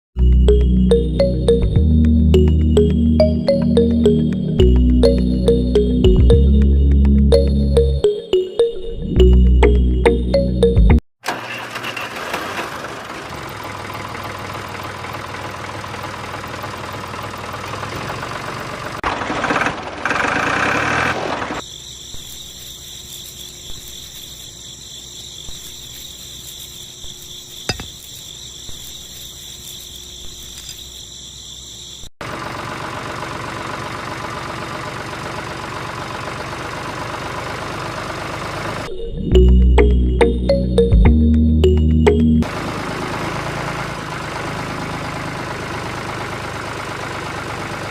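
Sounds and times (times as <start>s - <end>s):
small motor machinery running: 12.7s - 24.4s.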